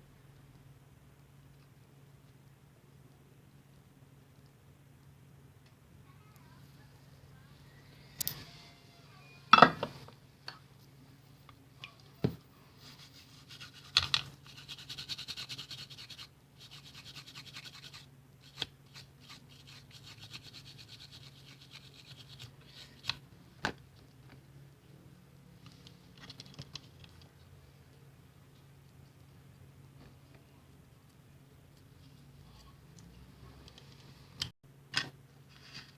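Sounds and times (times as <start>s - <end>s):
fine rapid scratching and ticking: 13.0s - 22.5s.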